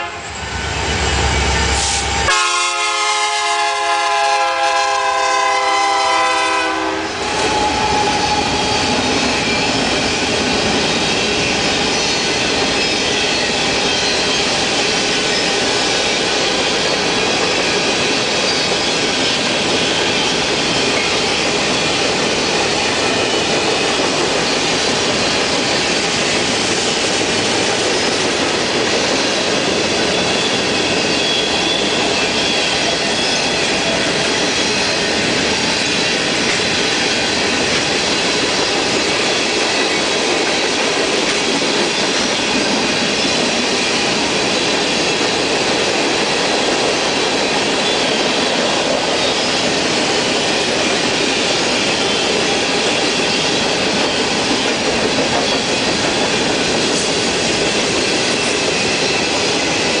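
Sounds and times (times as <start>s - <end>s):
freight train wheels rumbling: 0.0s - 60.0s
high wheel squeal: 7.3s - 26.4s, 29.0s - 37.4s.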